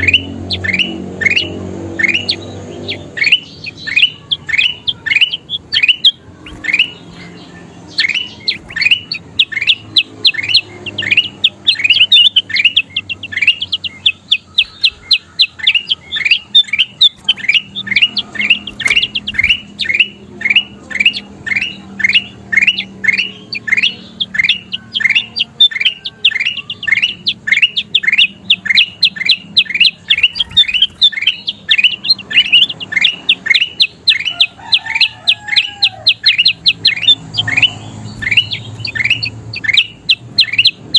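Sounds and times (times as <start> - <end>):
bulbul calling: 0.0 - 40.9.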